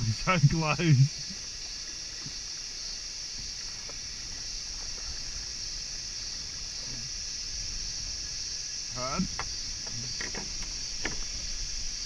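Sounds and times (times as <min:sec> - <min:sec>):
high-pitched insect chorus: 0:00.0 - 0:12.0
faint ticks: 0:09.0 - 0:12.0.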